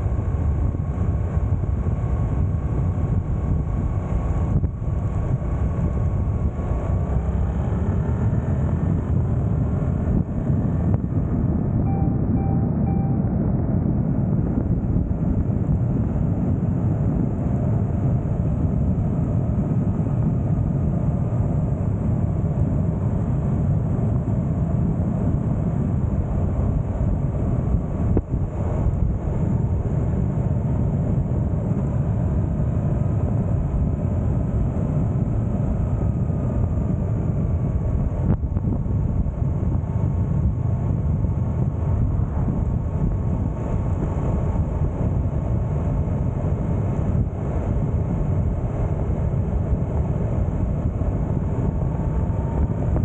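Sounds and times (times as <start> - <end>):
motorcycle engine running: 0.0 - 53.0
wind noise: 0.0 - 53.0.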